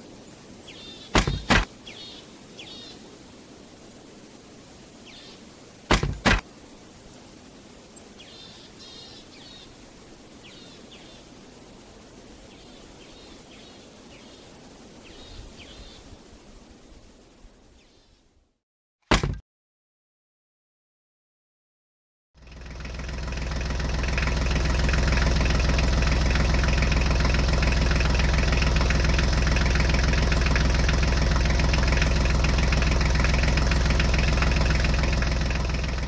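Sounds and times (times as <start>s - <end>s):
outdoor background hiss: 0.0s - 18.6s, 22.4s - 36.0s
birds chirping: 0.2s - 3.1s, 5.0s - 6.4s, 7.0s - 9.8s, 10.4s - 11.4s, 12.4s - 16.1s
sharp double knocks: 1.2s - 1.7s, 5.9s - 6.4s, 19.1s - 19.4s.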